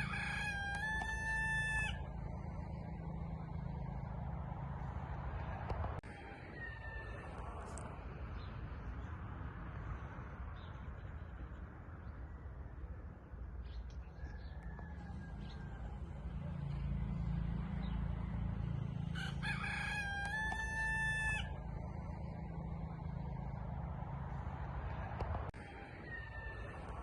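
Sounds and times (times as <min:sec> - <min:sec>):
rooster crowing: 0:00.0 - 0:03.9, 0:06.0 - 0:07.8, 0:14.2 - 0:16.8, 0:19.0 - 0:23.5, 0:25.6 - 0:27.0.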